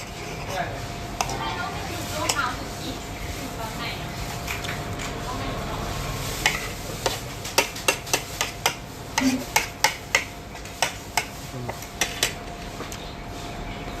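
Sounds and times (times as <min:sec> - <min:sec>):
cutlery clinking against plates: 0:01.2 - 0:01.5, 0:06.4 - 0:13.0.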